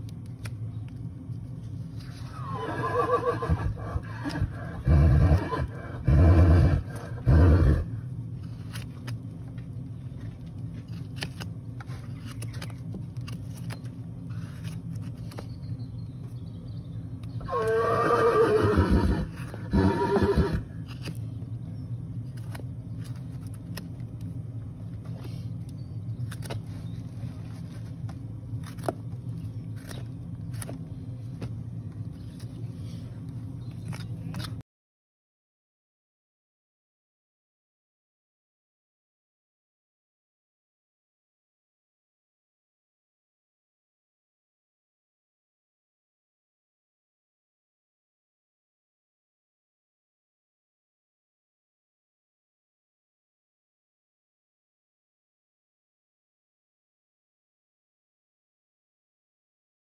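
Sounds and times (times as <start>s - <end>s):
steady low hum: 0.0s - 34.6s
horse whinnying: 2.3s - 7.9s, 17.4s - 20.7s.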